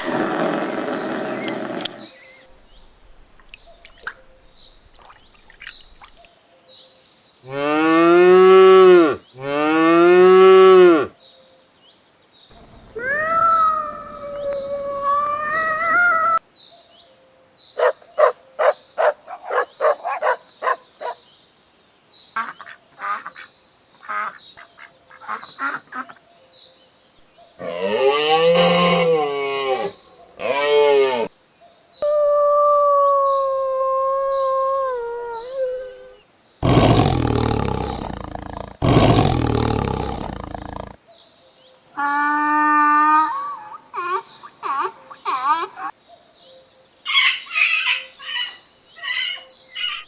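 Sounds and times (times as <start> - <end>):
rough low animal calls: 0.0 - 6.3, 12.6 - 16.4, 17.8 - 21.2, 32.0 - 41.0
animal call bending up and down: 12.6 - 16.4, 36.6 - 41.0
long falling animal call: 12.6 - 16.4, 27.6 - 31.3, 32.0 - 41.0, 42.0 - 45.9.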